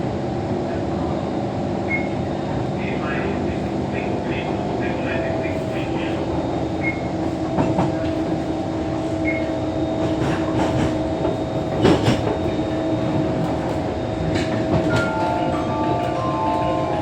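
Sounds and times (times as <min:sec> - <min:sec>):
wheel and track rumble: 0:00.2 - 0:17.0
onboard chime of stepped notes: 0:14.9 - 0:17.0.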